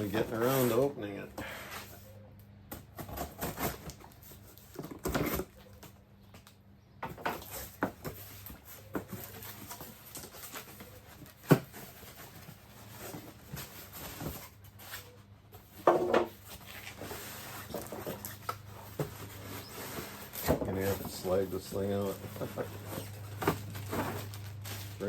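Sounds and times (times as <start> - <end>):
squeaky scrape: 0.0 - 2.3, 7.3 - 25.0
cardboard rustling: 7.1 - 25.0.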